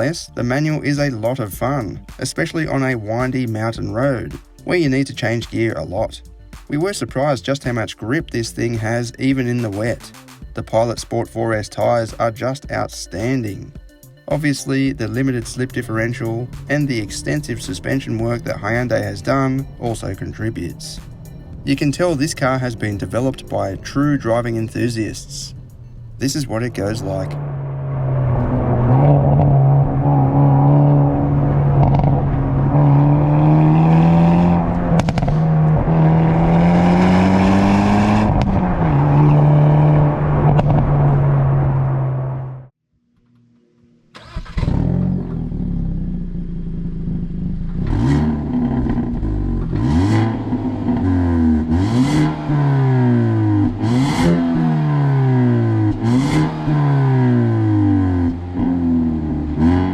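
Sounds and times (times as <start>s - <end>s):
car engine revving: 14.9s - 42.7s, 44.2s - 59.9s
exhaust cracks: 14.9s - 42.7s, 44.1s - 59.9s.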